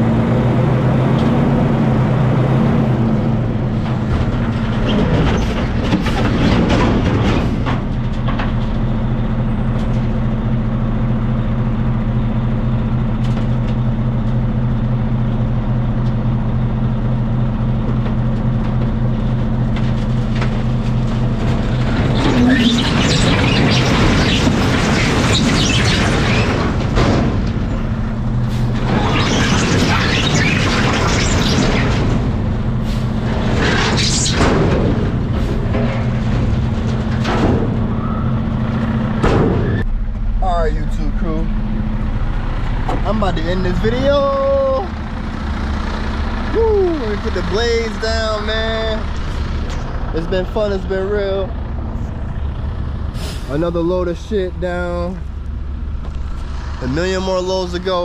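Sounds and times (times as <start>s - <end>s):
truck diesel engine droning: 0.0s - 58.0s.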